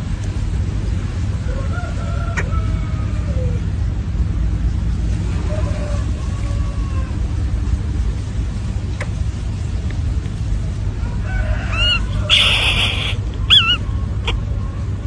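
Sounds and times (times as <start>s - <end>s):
low rumble: 0.0s - 15.0s
short bird calls: 11.7s - 14.4s.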